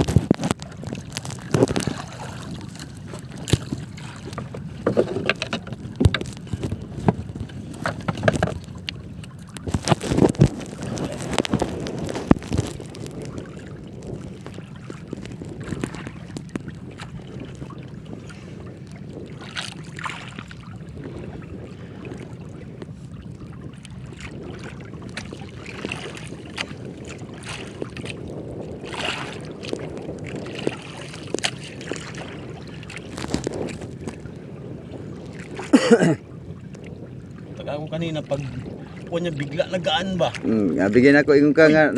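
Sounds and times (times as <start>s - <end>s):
water slapping boat hull: 0.0s - 41.9s
wind buffeting microphone: 0.0s - 41.9s.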